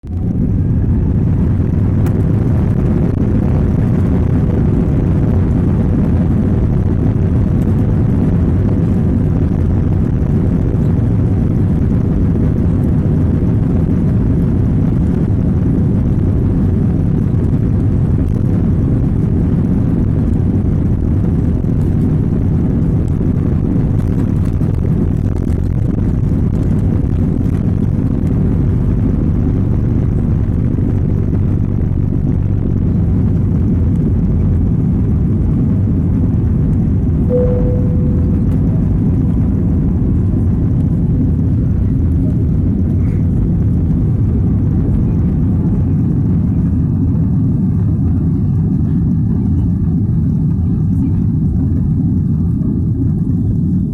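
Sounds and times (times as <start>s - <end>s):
airliner engine and airflow rumble: 0.0s - 53.9s
faint steady tones: 37.3s - 39.7s.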